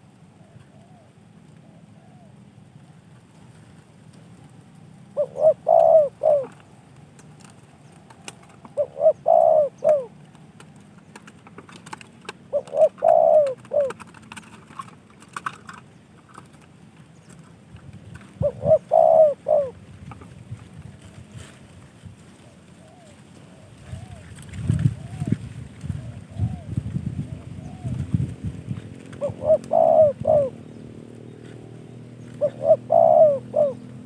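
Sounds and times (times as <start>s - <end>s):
dove cooing: 0.3s - 2.4s, 5.1s - 6.6s, 7.9s - 10.3s, 11.7s - 16.6s, 18.2s - 20.2s, 22.3s - 34.0s.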